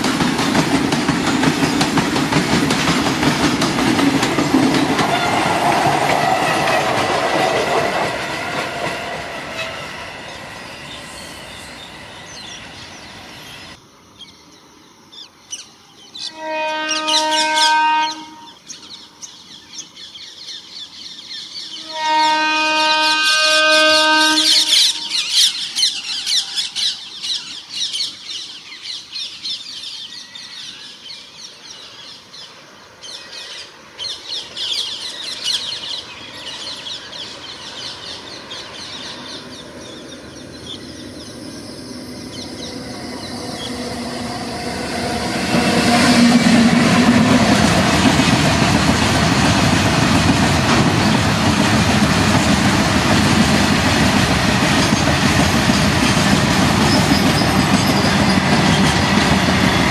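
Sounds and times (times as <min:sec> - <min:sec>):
freight train passing: 0:00.0 - 0:13.9, 0:16.2 - 0:59.9
birds chirping in trills: 0:09.5 - 0:46.9
horn note: 0:16.4 - 0:18.6, 0:21.8 - 0:25.3, 0:44.0 - 0:47.2.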